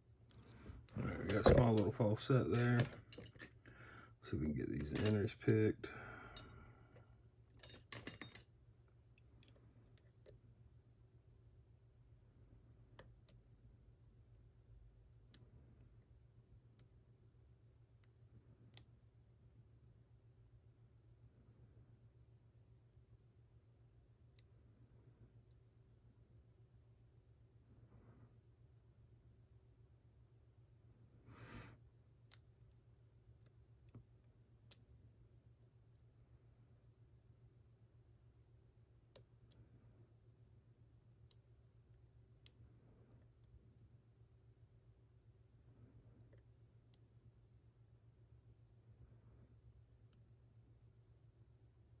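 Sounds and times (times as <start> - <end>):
low steady hum: 0.0 - 52.0
soft breath: 3.6 - 4.2, 5.8 - 7.2, 31.2 - 31.8.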